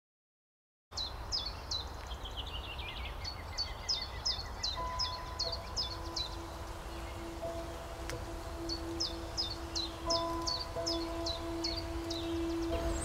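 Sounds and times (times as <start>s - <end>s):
birds chirping: 1.0s - 13.0s
soft held music tones: 4.4s - 13.0s
low outdoor rumble: 5.1s - 13.0s.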